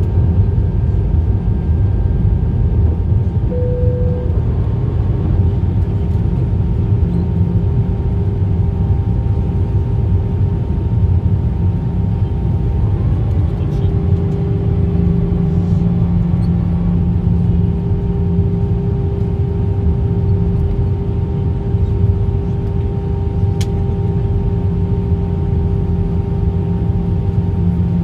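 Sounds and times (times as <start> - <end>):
aircraft cabin engine rumble: 0.0 - 28.0
brief single tone: 3.5 - 4.6.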